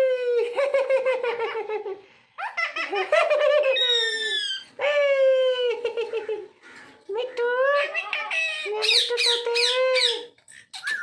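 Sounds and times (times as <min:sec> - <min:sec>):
parrot calling: 0:03.6 - 0:04.8, 0:06.1 - 0:11.0.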